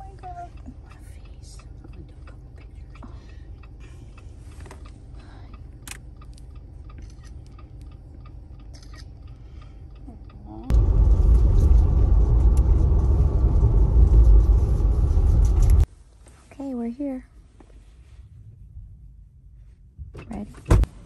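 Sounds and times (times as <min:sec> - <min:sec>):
faint ticks: 0:00.0 - 0:10.7
car road and engine rumble: 0:00.0 - 0:21.0
low steady hum: 0:00.0 - 0:21.0.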